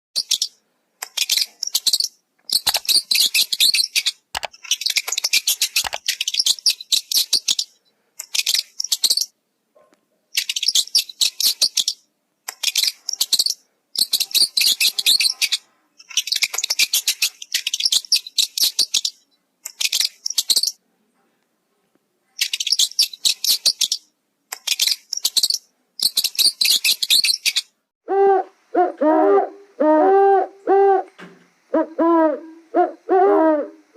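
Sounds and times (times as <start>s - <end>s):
birds chirping: 0.2s - 9.4s, 10.3s - 20.8s
low hooting call: 28.0s - 33.9s.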